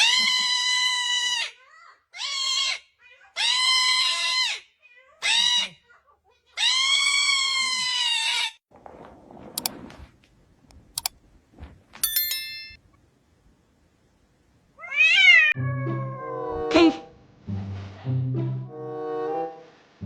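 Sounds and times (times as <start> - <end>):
cat yowling: 14.8 - 16.7.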